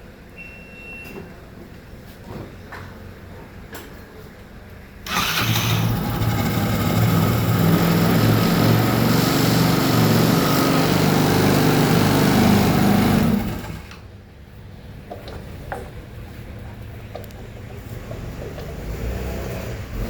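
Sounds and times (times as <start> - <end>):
motorcycle engine running: 5.1 - 13.9.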